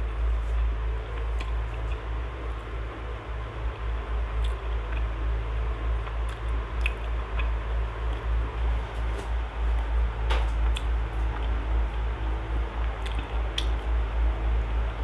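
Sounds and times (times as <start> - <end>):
person chewing: 0.0 - 2.1, 4.4 - 5.2, 6.0 - 8.3, 12.8 - 13.7.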